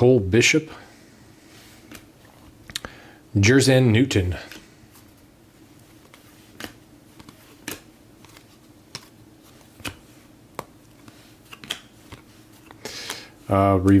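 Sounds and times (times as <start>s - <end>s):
cards flipping with clicks: 1.8s - 2.1s, 5.8s - 13.2s.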